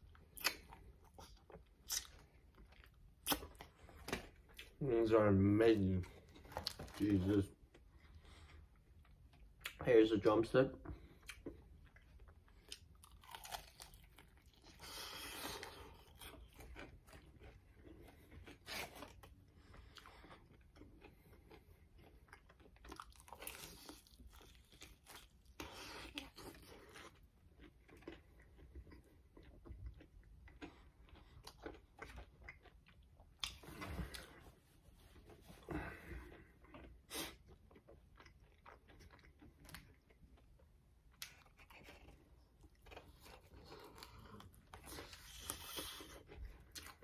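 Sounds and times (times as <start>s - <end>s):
crunchy chewing of fried chicken: 10.9s - 34.6s, 35.2s - 47.0s.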